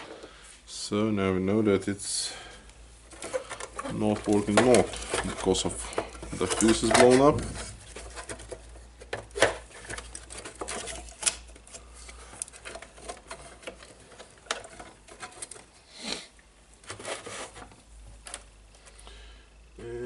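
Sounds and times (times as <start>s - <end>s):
tools clicking and rattling: 3.1s - 15.7s.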